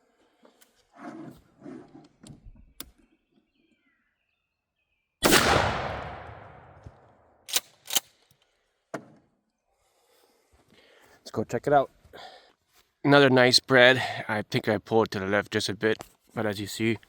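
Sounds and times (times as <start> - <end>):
shotgun blast with echo: 5.2 - 6.8.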